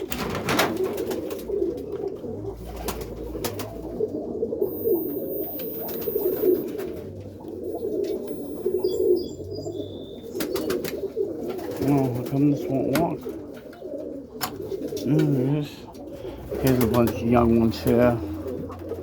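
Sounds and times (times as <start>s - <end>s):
pigeons cooing: 0.0s - 19.0s
clicks: 4.7s - 6.8s.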